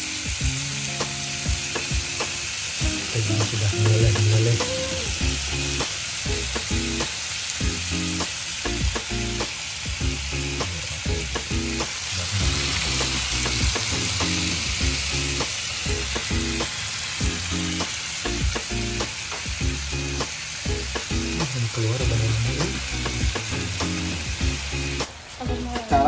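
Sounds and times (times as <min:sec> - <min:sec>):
squid sizzling in butter: 0:00.0 - 0:26.0.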